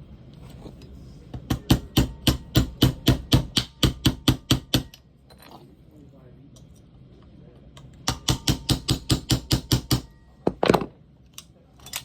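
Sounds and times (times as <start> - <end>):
hammer tapping metal pins: 8.0 - 10.1.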